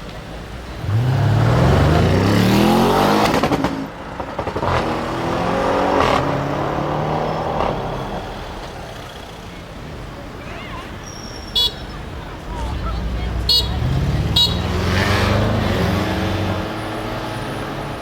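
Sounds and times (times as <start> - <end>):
car engine accelerating hard: 0.3 - 10.4, 11.9 - 18.0
exhaust cracks at gear change: 3.2 - 5.1.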